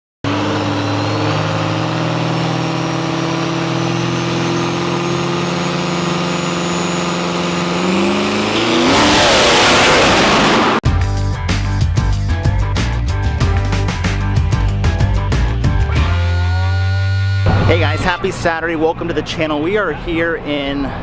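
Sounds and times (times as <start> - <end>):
diesel truck engine revving: 0.2 - 10.8, 13.6 - 18.5.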